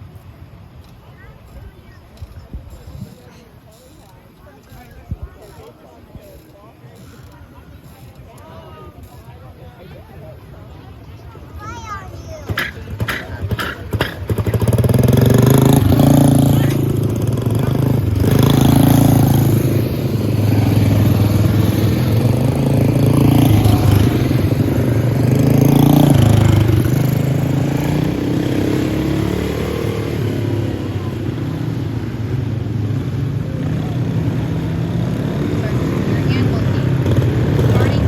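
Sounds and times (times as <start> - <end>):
kart engines racing: 11.2 - 38.0.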